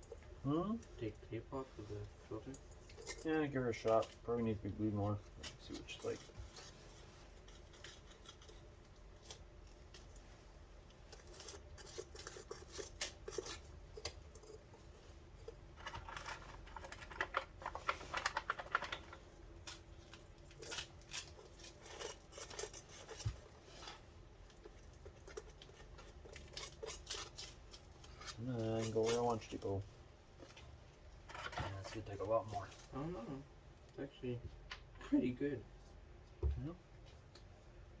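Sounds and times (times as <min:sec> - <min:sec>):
crackly tape tearing: 0:15.8 - 0:23.3.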